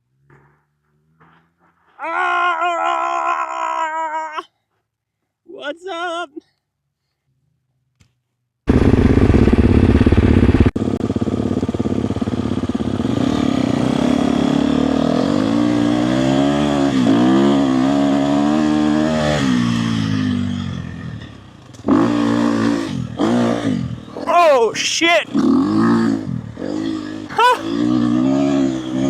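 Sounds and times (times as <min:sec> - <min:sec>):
dirt bike engine revving: 0:08.7 - 0:29.0.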